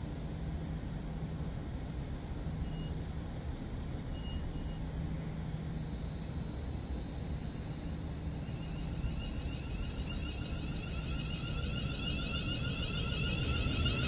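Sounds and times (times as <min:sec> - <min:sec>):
train wheels whining on rails: 0:05.2 - 0:14.0.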